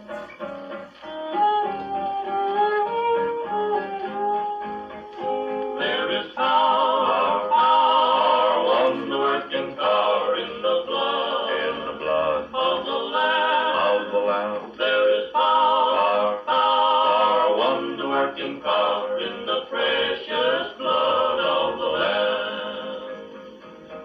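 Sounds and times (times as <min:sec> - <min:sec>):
guitar intro: 0:00.0 - 0:24.0
male vocal group singing harmony: 0:05.8 - 0:23.2.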